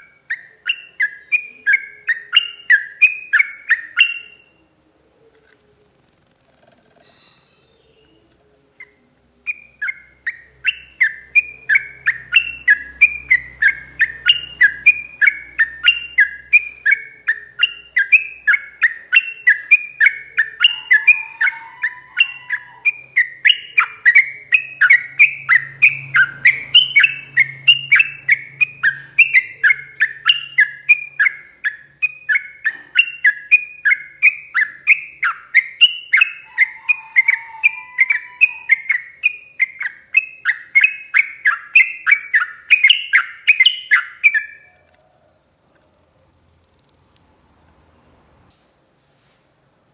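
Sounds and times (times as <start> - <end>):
bulbul singing whistled notes: 38.0 - 44.7.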